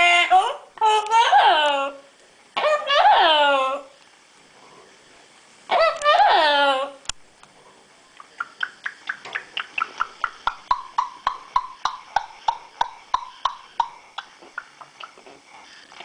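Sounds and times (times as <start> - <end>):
parrot making clicking pops: 8.2 - 15.2.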